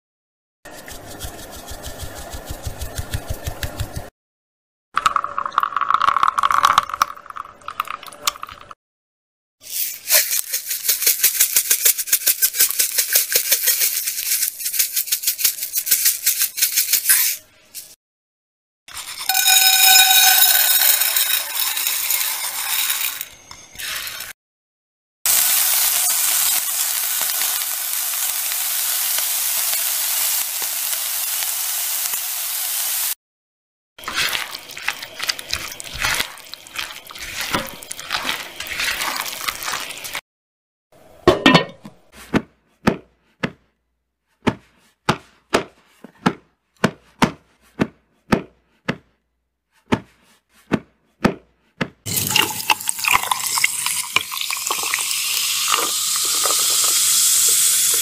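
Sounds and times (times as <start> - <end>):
utensil clatter and stirring: 0.7 - 3.8, 18.9 - 24.3, 34.0 - 40.2
fizzy drink pouring: 5.0 - 8.8, 34.0 - 40.2, 52.1 - 58.0
food sizzling: 18.9 - 23.2, 25.3 - 33.2, 34.0 - 40.2, 52.1 - 58.0.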